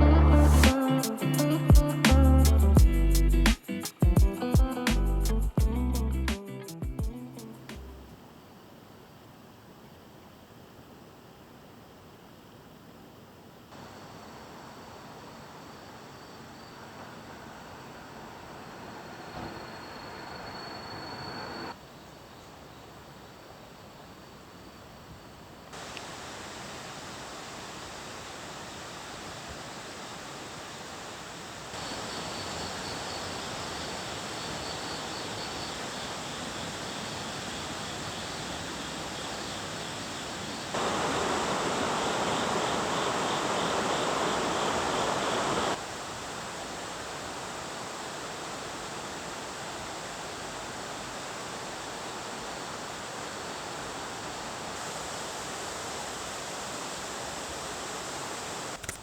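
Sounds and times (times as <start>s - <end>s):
waterfall rushing: 25.8s - 34.6s, 39.7s - 58.8s.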